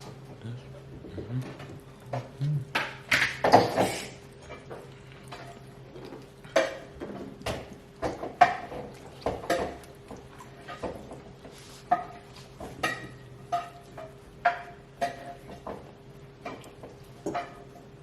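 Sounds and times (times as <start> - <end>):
plates and cutlery clinking: 16.4 - 17.8.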